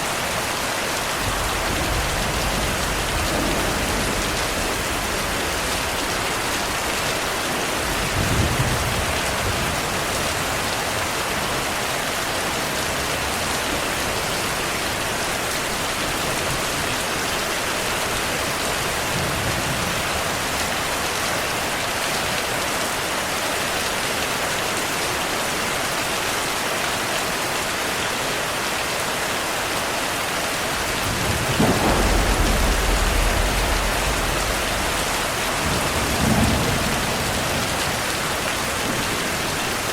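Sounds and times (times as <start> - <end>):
heavy rain: 0.0 - 39.9
thunder rumbling: 1.1 - 10.9, 30.7 - 39.9.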